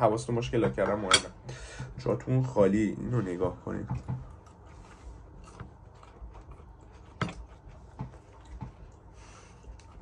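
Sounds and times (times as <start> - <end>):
person chewing: 4.2 - 10.0.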